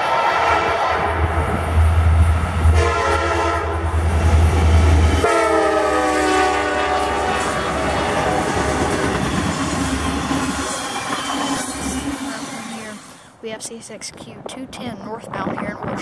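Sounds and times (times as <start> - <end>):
locomotive horn blasts: 0.0 - 1.4, 2.7 - 3.8, 5.2 - 8.5
rolling train cars: 0.0 - 13.4
diesel locomotive engine rumble: 0.0 - 14.5.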